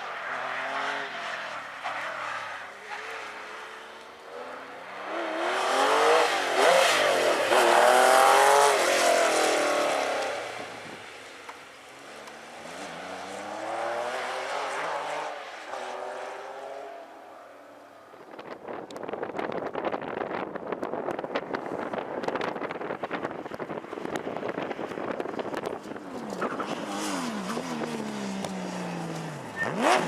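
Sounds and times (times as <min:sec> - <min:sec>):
rally car engine revving: 0:00.3 - 0:10.9, 0:12.1 - 0:17.0, 0:24.0 - 0:30.0.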